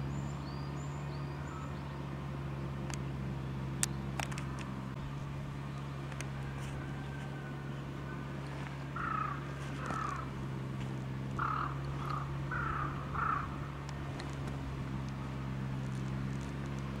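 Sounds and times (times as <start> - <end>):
steady low hum: 0.0 - 17.0
bird harsh calls: 6.5 - 10.4, 11.3 - 13.8.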